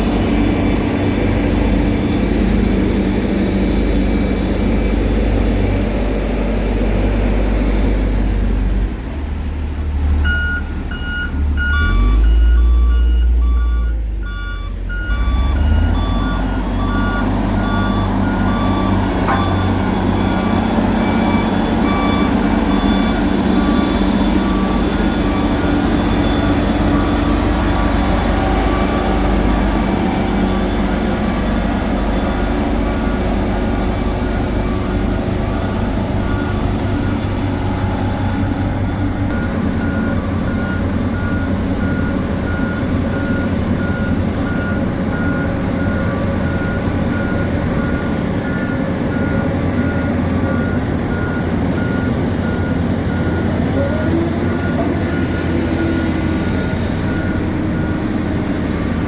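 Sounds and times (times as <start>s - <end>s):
diesel engines running: 0.0s - 59.0s
backup alarm beeping: 10.2s - 53.8s.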